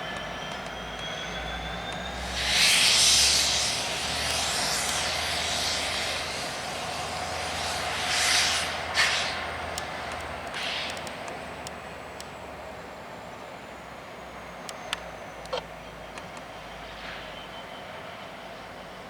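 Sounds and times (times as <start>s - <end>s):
freight train rumbling past: 0.0s - 14.3s
loud hissing bursts: 2.1s - 11.0s.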